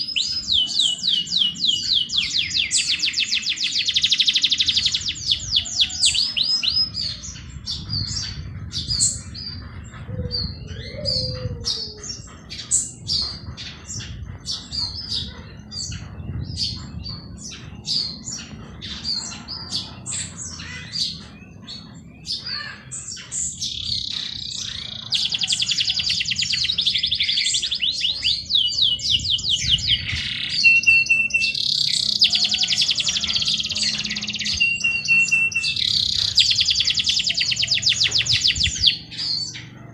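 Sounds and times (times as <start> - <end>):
fast dense bird trilling: 0.0 - 39.9
songbirds chirping: 0.0 - 39.9.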